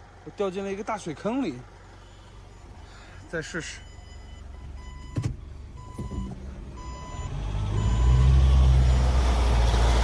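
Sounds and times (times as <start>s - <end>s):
vehicle engine revving under load: 4.8s - 10.0s.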